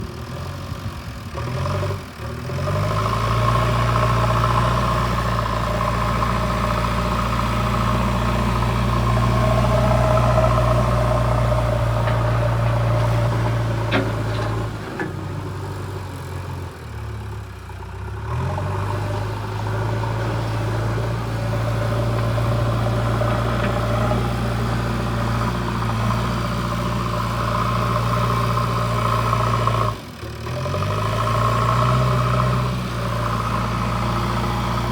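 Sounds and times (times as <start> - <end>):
diesel engine under load: 0.0 - 34.9
metal clank: 11.9 - 15.4.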